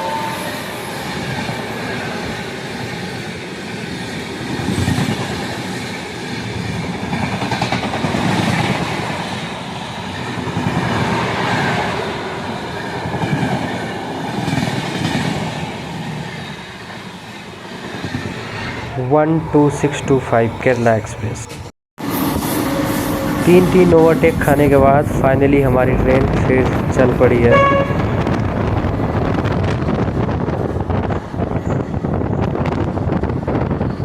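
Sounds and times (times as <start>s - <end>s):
train horn: 0.0s - 1.4s, 22.1s - 24.7s, 26.0s - 29.4s
train coaches rumbling past: 0.0s - 34.0s.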